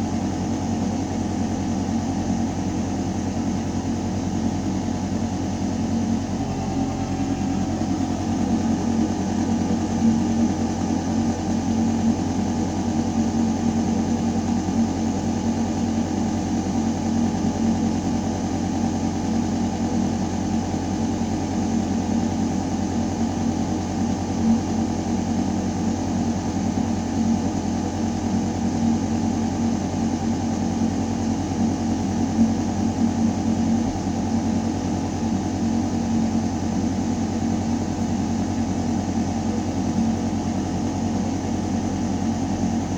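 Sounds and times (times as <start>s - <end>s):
ventilation system humming: 5.2s - 14.9s.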